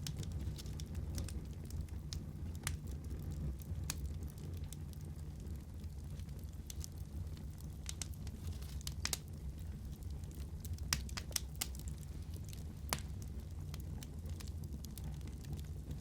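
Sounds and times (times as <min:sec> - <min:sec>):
low rumble of flames: 0:00.0 - 0:16.0
wood fire crackling: 0:00.0 - 0:16.0
sharp pops and snaps: 0:10.8 - 0:11.9, 0:12.9 - 0:13.2.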